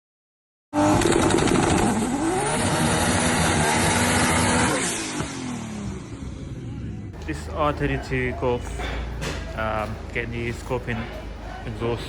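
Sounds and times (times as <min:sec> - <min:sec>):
car engine revving through exhaust: 0:00.8 - 0:07.1.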